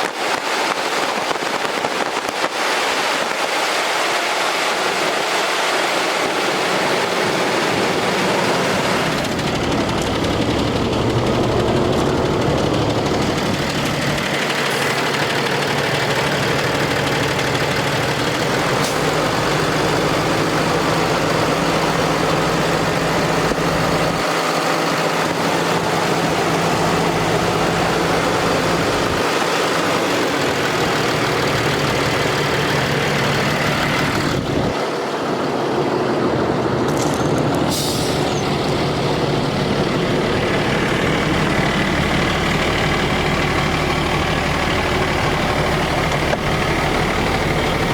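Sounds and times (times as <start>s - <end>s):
diesel engine running: 0.0s - 47.9s
brief hiss: 37.7s - 38.4s.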